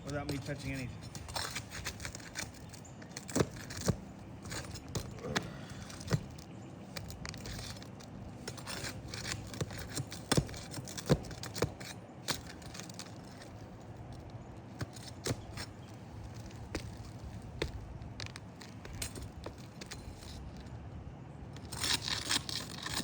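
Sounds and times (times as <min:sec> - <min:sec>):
tool prying nails from shingles: 0:00.0 - 0:20.6, 0:21.6 - 0:23.0.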